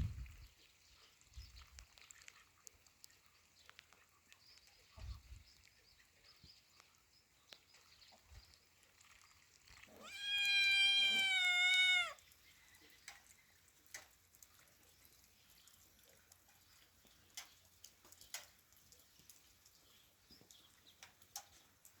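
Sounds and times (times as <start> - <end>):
faint ticks: 1.6 - 5.8, 11.1 - 22.0
cat meowing: 9.9 - 12.2.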